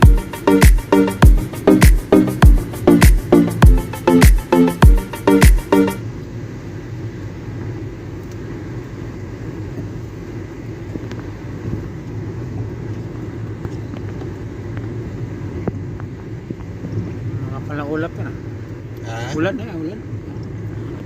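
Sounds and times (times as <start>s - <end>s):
music: 0.0s - 6.0s
low outdoor rumble: 0.0s - 21.0s.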